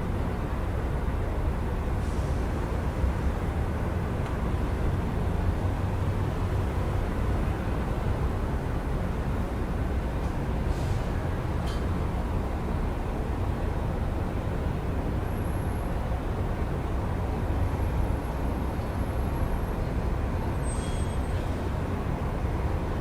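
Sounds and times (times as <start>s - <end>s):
rumble of passing traffic: 0.0s - 23.0s
faint high-pitched squeak: 20.6s - 21.5s.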